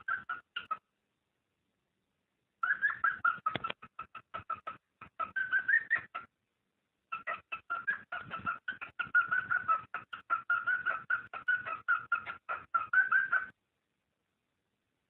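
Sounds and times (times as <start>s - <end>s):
bird chirping rapidly: 0.0s - 0.8s, 2.6s - 6.3s, 7.1s - 13.6s.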